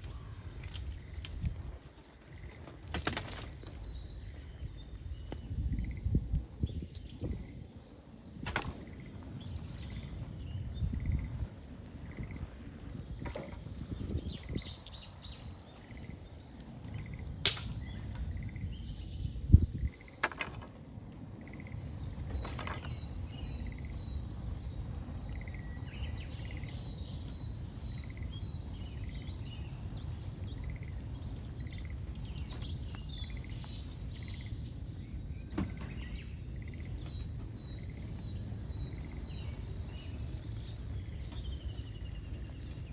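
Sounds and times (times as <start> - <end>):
small birds chirping: 0.0 - 42.9
fire snapping: 17.3 - 18.3.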